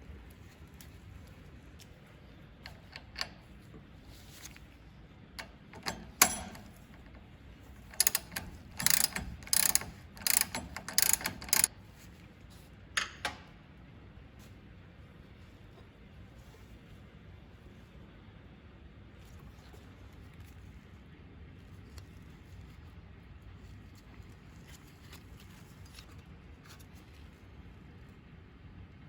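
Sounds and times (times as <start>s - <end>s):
small metal parts clicking: 5.4s - 11.7s.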